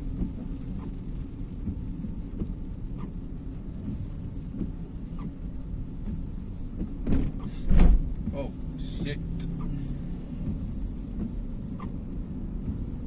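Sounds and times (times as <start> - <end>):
light hiss of wet road: 0.0 - 13.0
road and engine rumble: 0.0 - 13.0.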